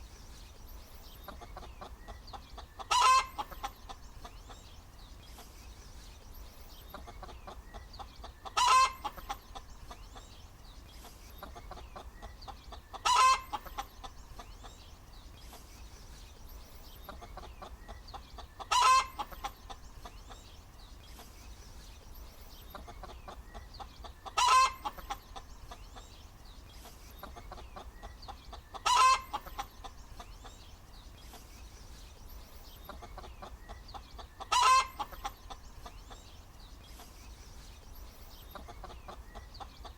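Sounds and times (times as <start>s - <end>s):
hen clucking softly: 1.1s - 5.6s, 6.7s - 10.4s, 11.0s - 15.7s, 16.9s - 21.4s, 22.5s - 30.7s, 32.7s - 37.2s, 38.3s - 39.9s.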